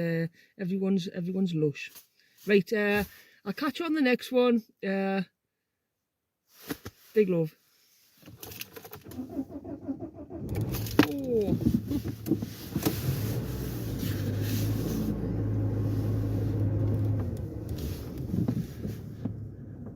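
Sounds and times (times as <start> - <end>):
car engine starting and running: 8.3 - 19.9
car clicks: 10.4 - 14.8, 16.5 - 19.9.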